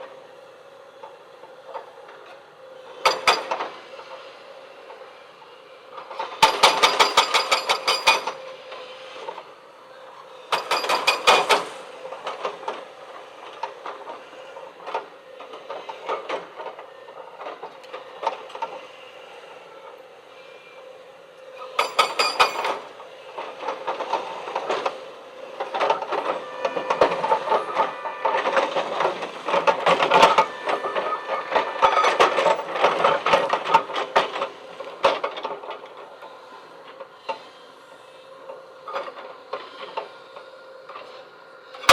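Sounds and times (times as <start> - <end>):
electric motors and gears whirring: 21.4 - 34.8.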